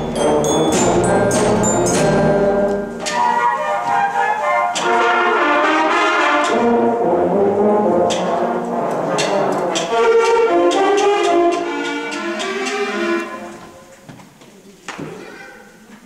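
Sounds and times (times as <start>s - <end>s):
sharp percussion strikes: 0.0s - 3.4s
concert band playing: 0.0s - 13.7s.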